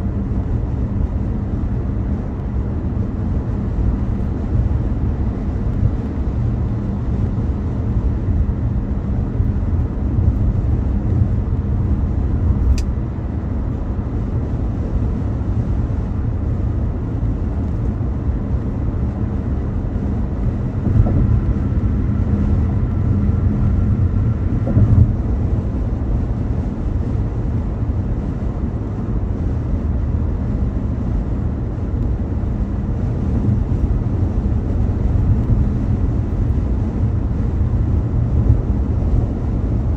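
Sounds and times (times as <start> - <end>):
car road and engine rumble: 0.0 - 39.9
soft thumps: 20.8 - 21.6, 24.6 - 25.1.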